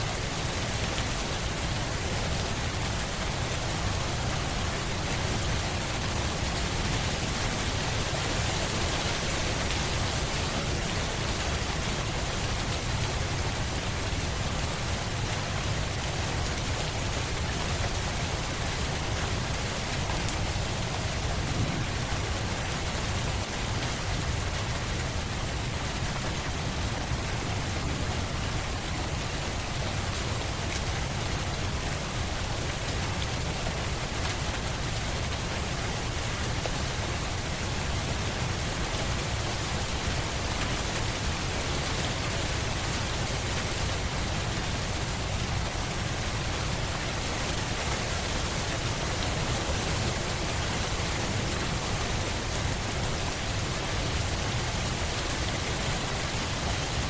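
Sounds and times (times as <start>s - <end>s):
steady rain falling: 0.0s - 57.0s
constant low rumble: 17.4s - 24.7s.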